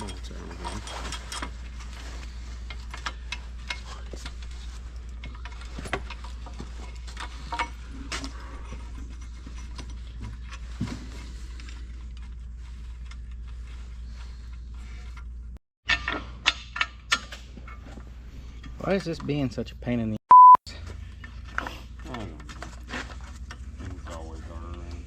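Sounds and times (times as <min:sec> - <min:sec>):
hand tools clinking on metal: 0:00.0 - 0:01.7.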